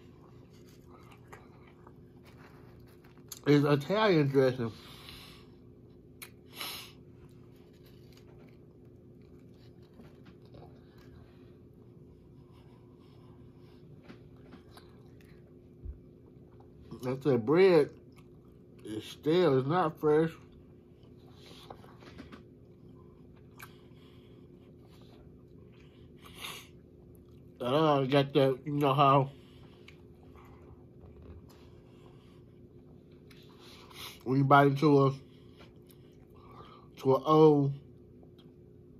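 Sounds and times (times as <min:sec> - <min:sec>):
person chewing: 0:00.0 - 0:03.5, 0:05.7 - 0:12.4, 0:13.8 - 0:17.1, 0:17.9 - 0:19.0, 0:20.5 - 0:27.6, 0:29.5 - 0:34.2
steady low hum: 0:00.0 - 0:38.9.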